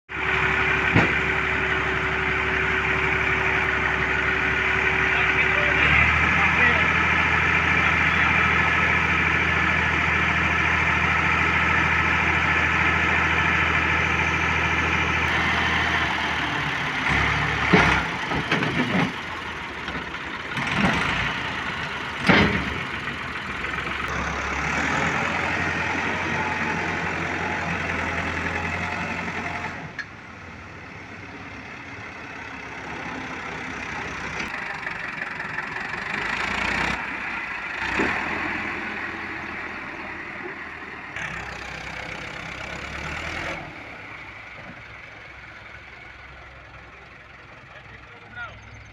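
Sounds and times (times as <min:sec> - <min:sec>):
tractor engine running: 0:00.1 - 0:48.9
loud knocks and clatter: 0:00.9 - 0:01.4, 0:17.6 - 0:19.3, 0:22.2 - 0:22.9.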